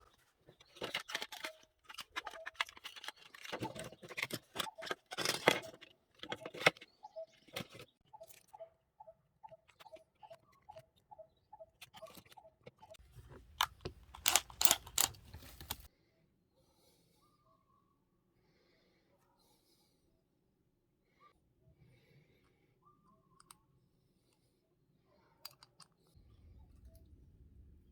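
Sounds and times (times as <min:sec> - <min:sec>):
regular ticking: 0:13.0 - 0:15.9
sharp clicks and knocks: 0:13.0 - 0:15.9.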